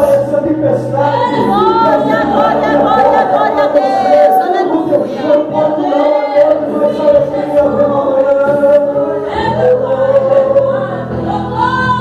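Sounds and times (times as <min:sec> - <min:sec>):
low steady accompaniment: 0:00.0 - 0:12.0
voices singing gospel song: 0:00.0 - 0:12.0.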